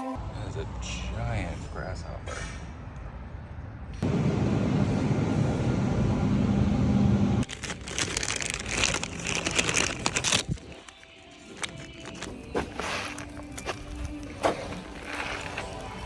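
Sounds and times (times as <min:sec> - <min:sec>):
crackling and rustling noise: 0:07.4 - 0:16.0.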